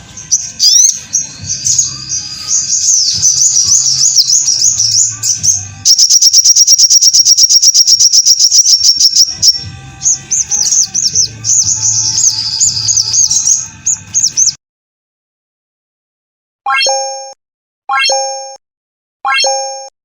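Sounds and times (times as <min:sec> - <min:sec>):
bird trilling and chirping: 0:00.0 - 0:14.6.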